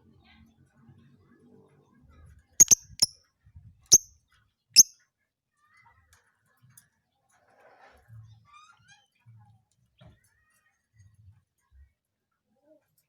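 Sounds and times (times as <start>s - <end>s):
bird shrill chirps: 2.6s - 3.1s.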